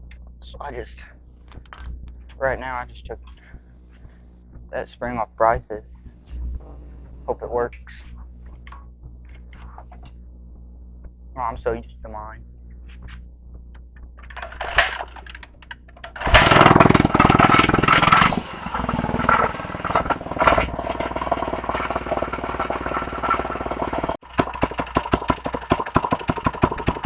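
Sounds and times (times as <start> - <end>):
mini bike engine popping: 14.3 - 27.0.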